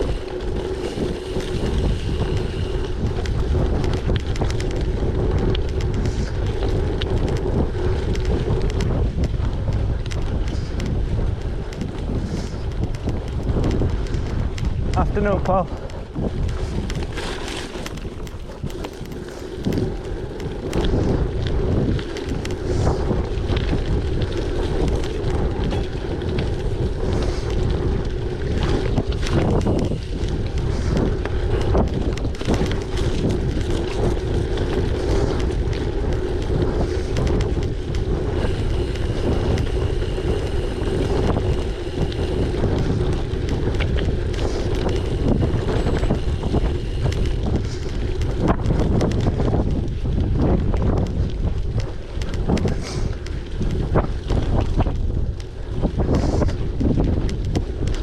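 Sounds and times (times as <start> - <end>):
bike clicks and rattles: 0.0 - 58.0
wind buffeting microphone: 0.0 - 58.0
tyre rumble: 15.8 - 58.0.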